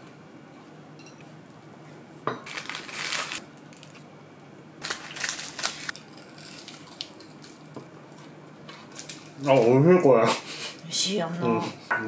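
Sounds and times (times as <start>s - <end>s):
crunchy fried food being chewed: 4.8s - 9.8s.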